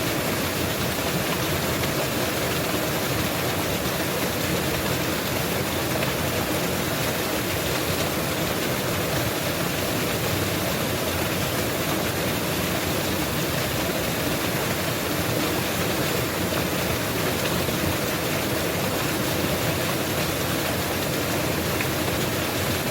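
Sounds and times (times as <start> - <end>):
waterfall roaring: 0.0 - 22.9.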